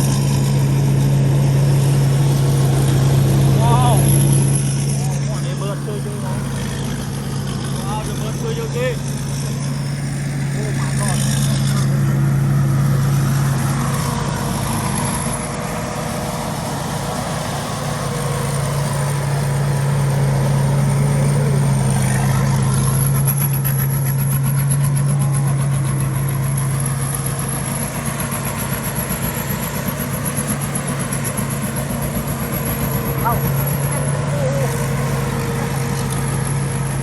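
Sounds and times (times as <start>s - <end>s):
engine droning: 0.0s - 37.0s.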